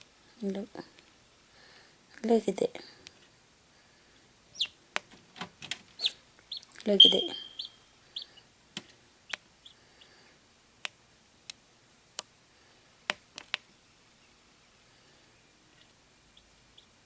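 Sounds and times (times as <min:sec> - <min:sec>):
chick peeping: 0:04.5 - 0:04.8, 0:06.0 - 0:08.5, 0:09.3 - 0:10.2, 0:15.6 - 0:17.0.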